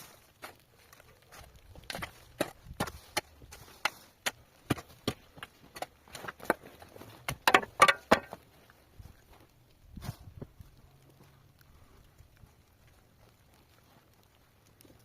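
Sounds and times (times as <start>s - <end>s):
hand tool striking hard material: 7.3s - 8.4s.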